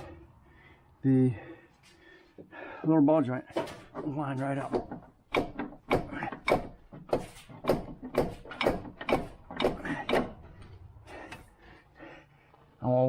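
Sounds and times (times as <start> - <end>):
sharp metal knocks and clunks: 3.4 - 11.5.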